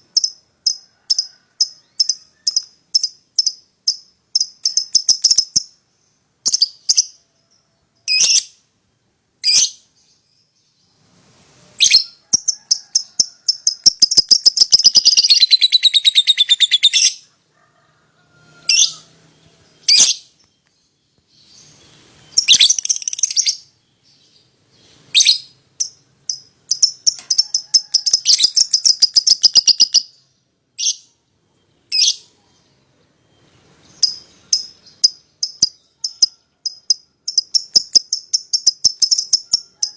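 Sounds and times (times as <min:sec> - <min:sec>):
lovebirds chirping: 0:18.6 - 0:39.7.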